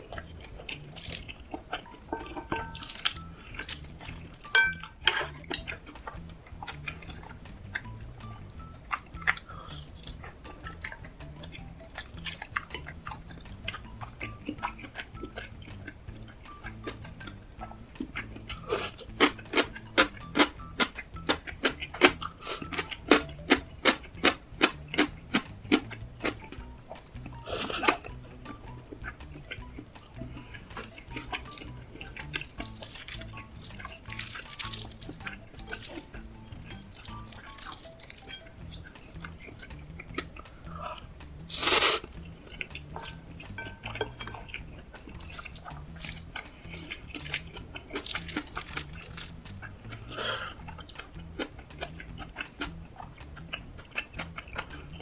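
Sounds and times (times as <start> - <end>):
crunchy eating clicks: 28.8 - 50.0, 50.6 - 55.0.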